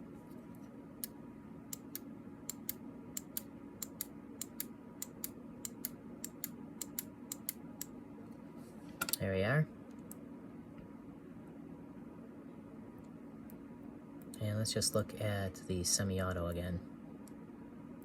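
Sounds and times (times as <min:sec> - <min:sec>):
steady low hum: 0:00.0 - 0:18.0
trigger switch clicking: 0:01.7 - 0:07.9.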